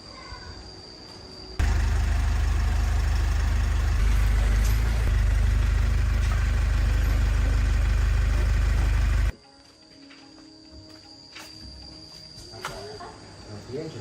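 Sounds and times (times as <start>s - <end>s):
diesel engine running: 1.6s - 9.3s.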